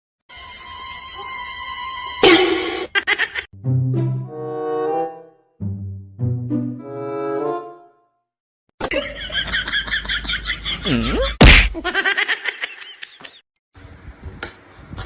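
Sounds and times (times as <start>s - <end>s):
loud whack: 11.4s - 11.8s.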